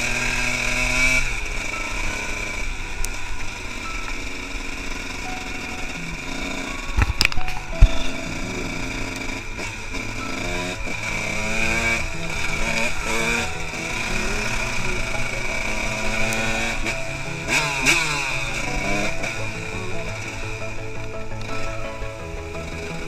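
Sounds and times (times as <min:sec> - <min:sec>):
two-stroke motorcycle engine revving: 0:00.0 - 0:07.2, 0:07.8 - 0:23.0.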